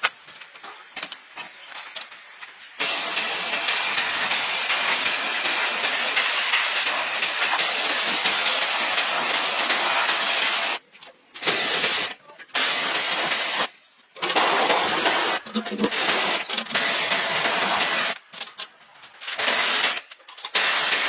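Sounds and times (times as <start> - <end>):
loud steady hiss: 2.7 - 18.2, 19.2 - 21.0.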